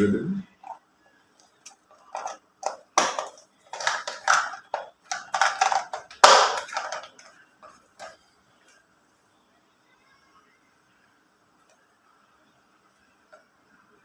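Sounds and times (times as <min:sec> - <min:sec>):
plastic crackling rustles: 0:01.4 - 0:08.2
plastic parts clicking: 0:01.4 - 0:08.2.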